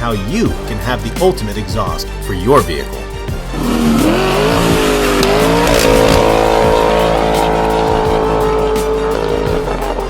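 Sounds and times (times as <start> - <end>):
car engine revving: 3.3 - 10.0.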